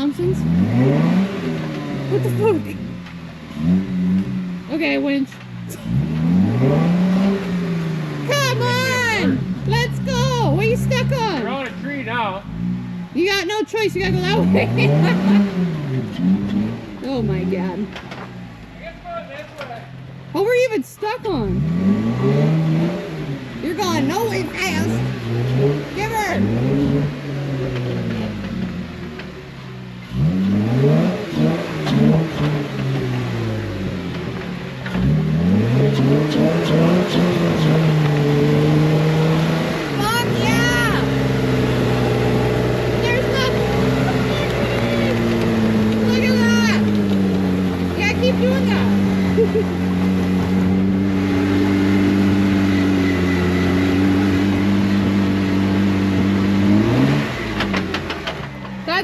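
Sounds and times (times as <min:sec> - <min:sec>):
off-road engine revving: 0:00.0 - 0:59.0.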